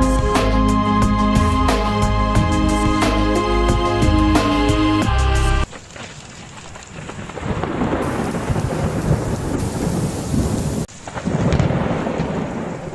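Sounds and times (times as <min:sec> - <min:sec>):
heavy rain: 0:05.5 - 0:12.9
thunder rumbling: 0:06.8 - 0:12.9.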